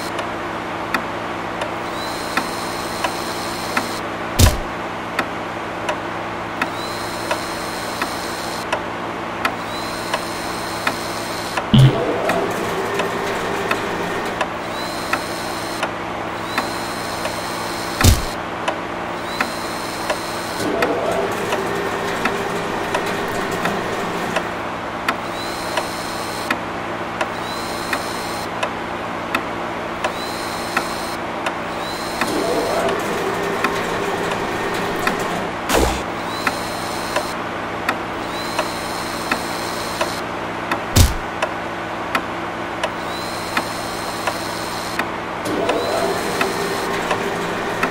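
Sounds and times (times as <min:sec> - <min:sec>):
steady mechanical hum: 0:00.0 - 0:47.9
sharp clicks: 0:02.3 - 0:04.7, 0:18.0 - 0:18.4, 0:40.0 - 0:41.5
short rising whirs: 0:09.7 - 0:18.4, 0:30.2 - 0:37.4, 0:43.1 - 0:47.9.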